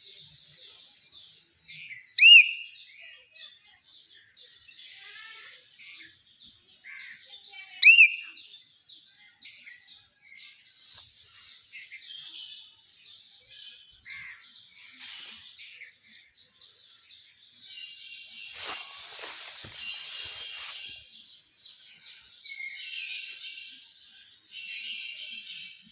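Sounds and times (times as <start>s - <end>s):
small birds chirping: 0.0s - 25.9s
rustling: 14.8s - 15.7s, 18.4s - 21.1s.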